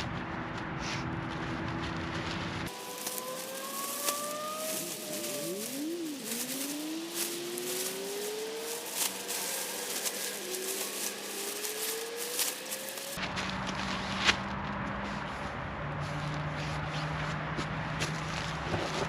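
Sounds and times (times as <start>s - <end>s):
rushing noise with low hum: 0.0s - 19.0s
car engine revving: 2.7s - 13.8s.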